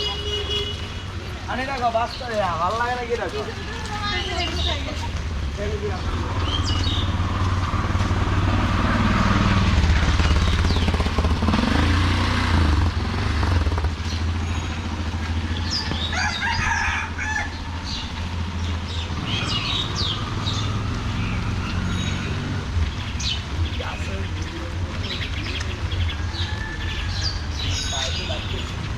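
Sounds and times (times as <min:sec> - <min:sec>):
small birds chirping: 0:00.0 - 0:08.6, 0:09.8 - 0:28.9
vehicle engine rumble: 0:00.0 - 0:28.9
rooster crowing: 0:15.4 - 0:18.2, 0:26.2 - 0:27.5.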